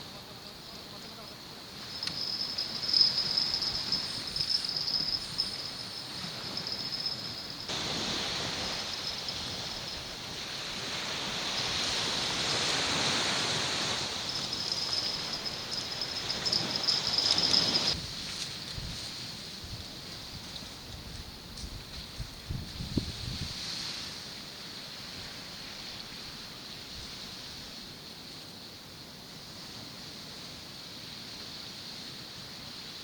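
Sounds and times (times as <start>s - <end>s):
high-pitched insect trill: 0.0s - 33.0s
waves washing on shore: 1.4s - 18.0s.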